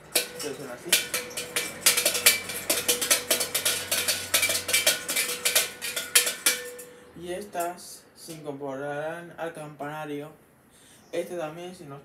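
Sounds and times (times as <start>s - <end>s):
small metal bells shaken: 0.0s - 6.9s
steady ringing tone: 0.0s - 7.0s.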